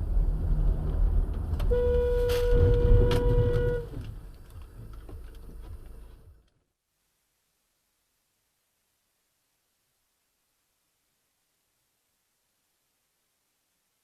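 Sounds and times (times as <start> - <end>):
vehicle rumble: 0.0 - 6.5.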